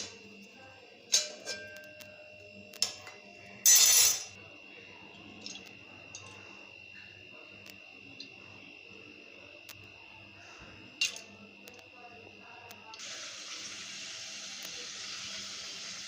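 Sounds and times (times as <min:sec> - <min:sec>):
faint steady high tone: 0:00.0 - 0:13.0
metal utensil clink: 0:01.1 - 0:02.0, 0:02.8 - 0:04.3.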